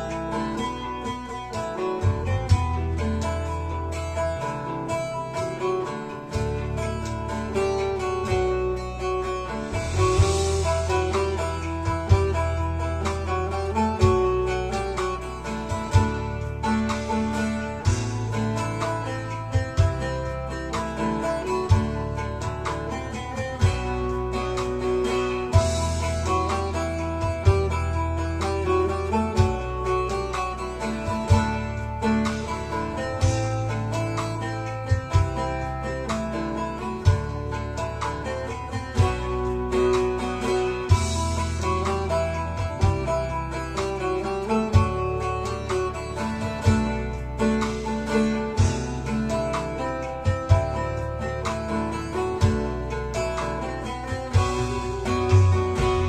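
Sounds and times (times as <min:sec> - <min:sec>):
deep bass notes: 0:00.0 - 0:56.0
plucked saz melody: 0:00.0 - 0:56.0
sustained low bass: 0:08.4 - 0:14.7, 0:54.2 - 0:56.0.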